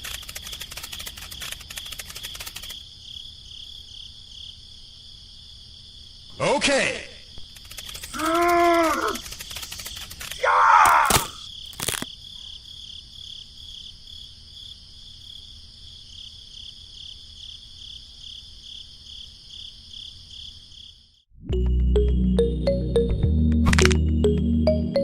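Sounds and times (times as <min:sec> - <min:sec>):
sharp clicks: 0:00.0 - 0:02.8, 0:07.4 - 0:12.1
insect chirring: 0:00.0 - 0:06.3, 0:07.2 - 0:21.2
short loud voice-like cry: 0:08.1 - 0:09.2, 0:10.4 - 0:11.4.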